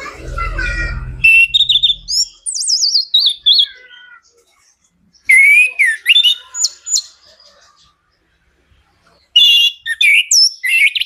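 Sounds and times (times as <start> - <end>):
thrush singing varied song: 0.0 - 3.5.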